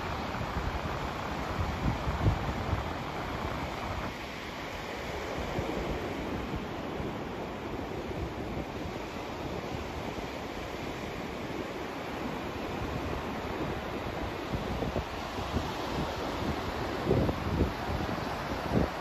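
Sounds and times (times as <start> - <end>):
white noise hiss: 0.0 - 19.0.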